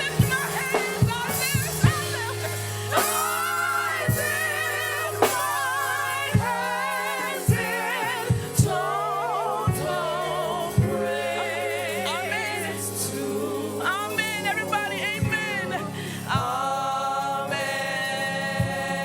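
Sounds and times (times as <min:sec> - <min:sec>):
drum hits: 0:00.0 - 0:08.9
gospel singers: 0:00.0 - 0:19.0.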